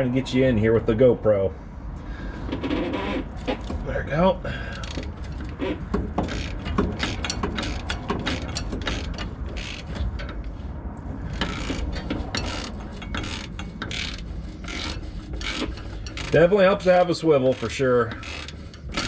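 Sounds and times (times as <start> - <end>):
socket ratchet clicking: 6.2 - 10.4, 11.4 - 16.4.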